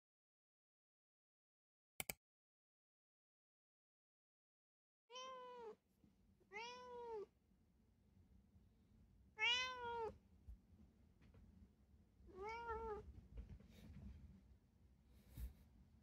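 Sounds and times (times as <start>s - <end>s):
cat meowing: 5.1s - 5.8s, 6.5s - 7.3s, 9.4s - 10.2s, 12.3s - 13.1s.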